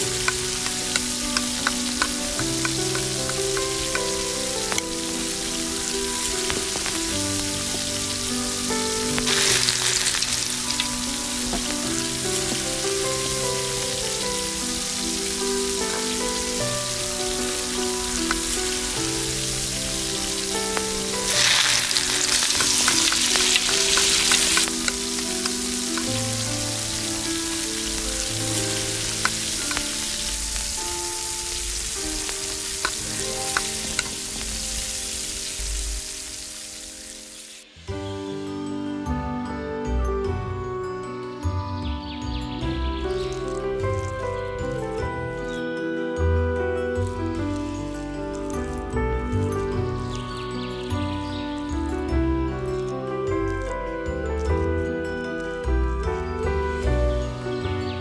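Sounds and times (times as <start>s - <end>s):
vegetables sizzling in oil: 0.0s - 37.9s
soft background music: 0.0s - 58.0s.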